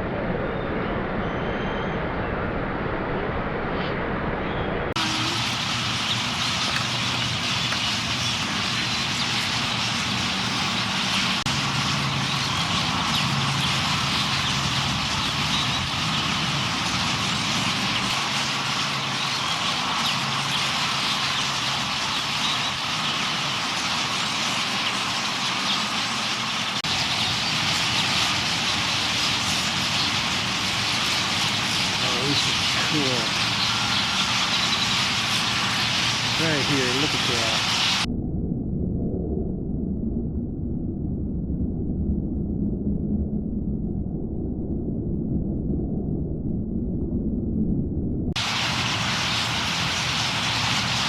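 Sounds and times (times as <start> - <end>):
flock of birds chirping: 4.5 - 38.1, 48.4 - 51.0
low engine hum: 4.9 - 38.1.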